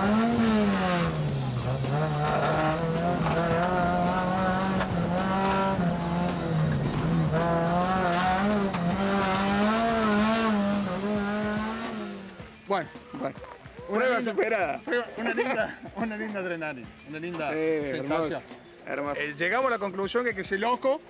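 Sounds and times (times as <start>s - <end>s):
race car engine at high revs: 0.0s - 12.4s.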